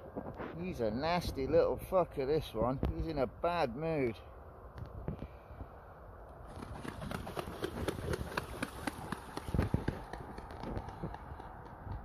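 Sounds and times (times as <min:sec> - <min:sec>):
swan feet and wings slapping water: 0:06.5 - 0:11.1.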